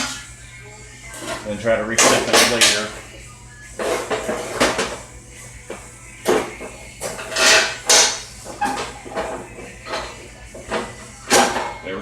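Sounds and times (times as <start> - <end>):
metal clunks and scrapes: 1.1 - 3.1, 3.8 - 5.1, 5.7 - 11.8.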